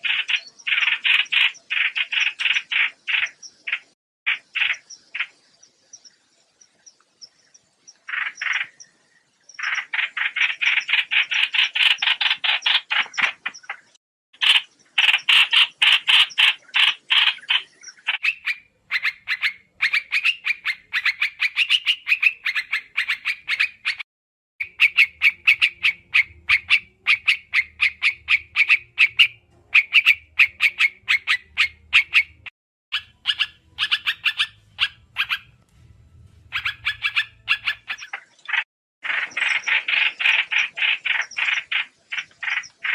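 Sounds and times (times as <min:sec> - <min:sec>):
bird calling rapid repeated notes: 0:00.0 - 0:05.4, 0:08.0 - 0:08.8, 0:09.6 - 0:24.0, 0:24.6 - 0:35.6, 0:36.4 - 0:42.9
faint low hum: 0:34.6 - 0:37.7.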